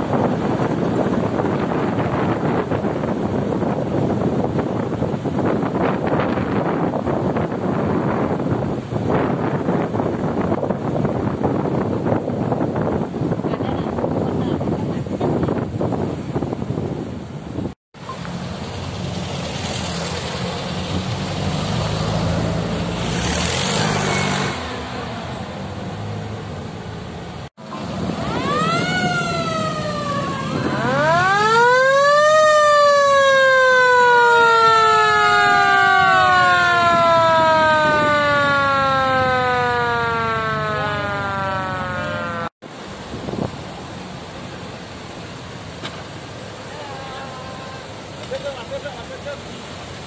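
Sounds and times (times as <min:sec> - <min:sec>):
second siren tone gliding: 0:27.8 - 0:42.5
siren winding up and down: 0:28.0 - 0:42.5.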